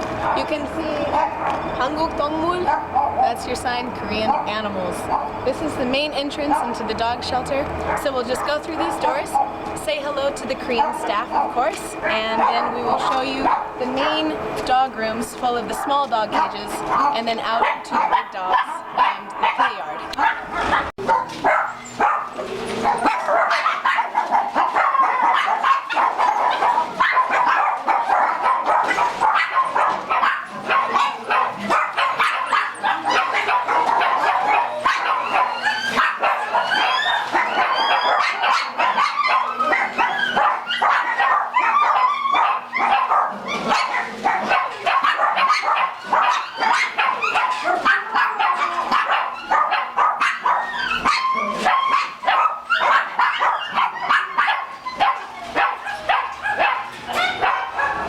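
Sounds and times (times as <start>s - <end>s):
many dogs barking and whining: 0.0s - 58.0s
high rising yelps: 30.9s - 58.0s.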